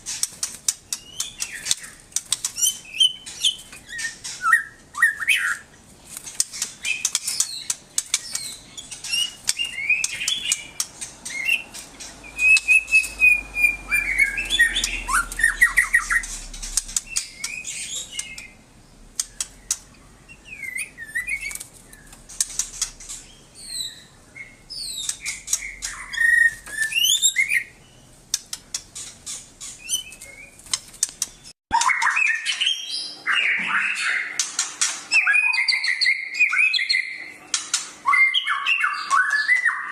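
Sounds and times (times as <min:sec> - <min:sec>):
songbird singing: 0:00.0 - 0:34.4, 0:35.1 - 0:37.4, 0:38.0 - 0:39.9
sharp clicks: 0:00.1 - 0:02.7, 0:06.1 - 0:13.3, 0:14.6 - 0:18.5, 0:19.1 - 0:20.0, 0:21.4 - 0:23.2, 0:28.3 - 0:29.2, 0:30.1 - 0:32.0.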